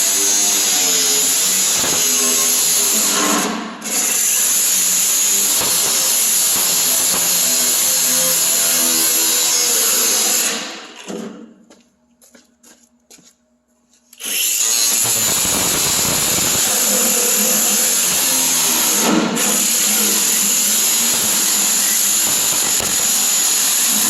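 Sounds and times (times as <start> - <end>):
power tool whining: 14.2 - 24.0.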